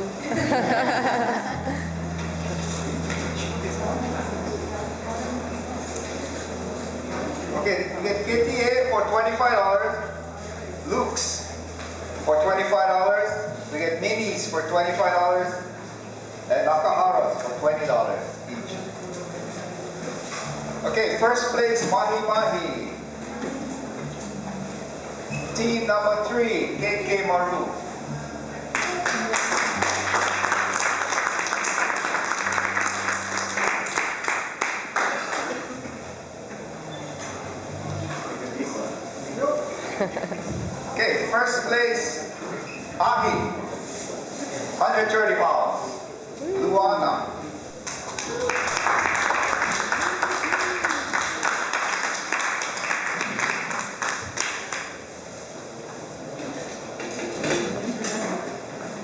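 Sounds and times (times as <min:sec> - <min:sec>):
crowd applauding: 0:28.7 - 0:35.8, 0:47.8 - 0:55.0.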